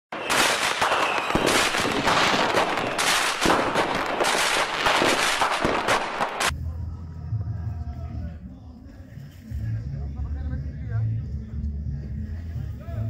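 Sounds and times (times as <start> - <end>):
fireworks crackling: 0.1 - 6.6.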